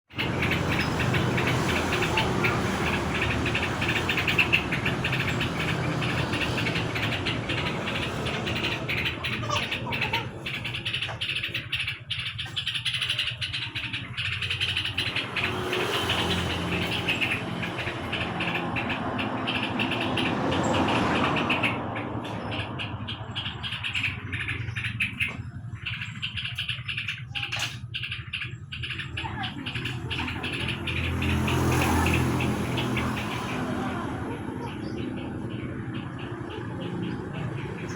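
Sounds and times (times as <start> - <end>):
birds chirping high: 0.0 - 37.9.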